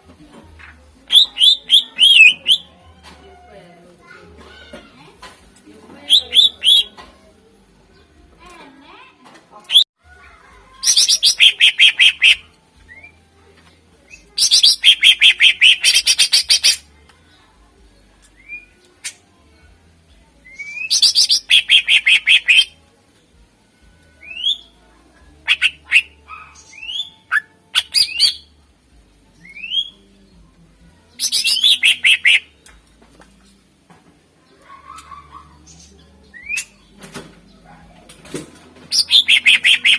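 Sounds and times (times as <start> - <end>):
bird chattering notes: 6.1 - 7.0, 10.9 - 12.4, 21.0 - 22.7, 31.3 - 32.5, 38.9 - 39.9.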